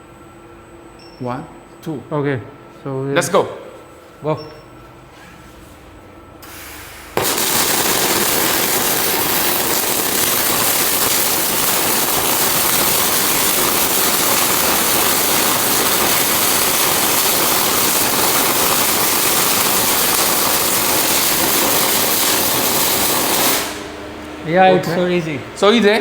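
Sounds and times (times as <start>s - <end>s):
robot welding head hissing: 6.4s - 23.8s.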